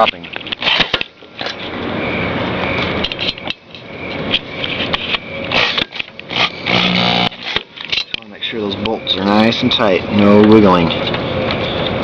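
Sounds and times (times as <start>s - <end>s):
cordless screwdriver whirring: 5.5s - 7.6s.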